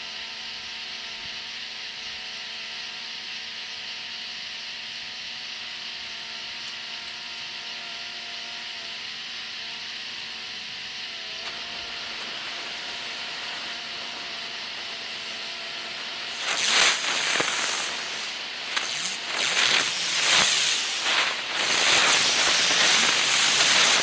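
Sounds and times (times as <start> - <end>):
steady hiss: 10.1 - 24.0
fireworks spraying and whistling: 10.8 - 24.0.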